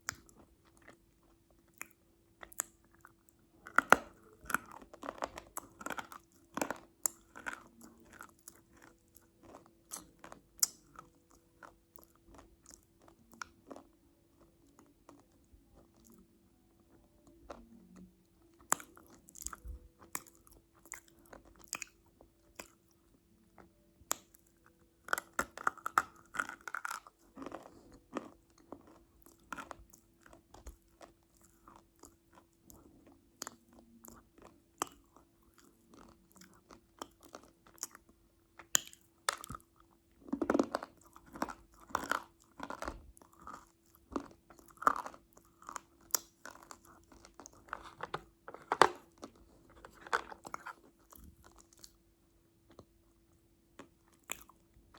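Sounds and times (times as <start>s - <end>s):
crunchy chewing: 0.0s - 16.3s, 16.9s - 52.0s, 52.6s - 54.8s
faint steady hum: 0.0s - 54.9s.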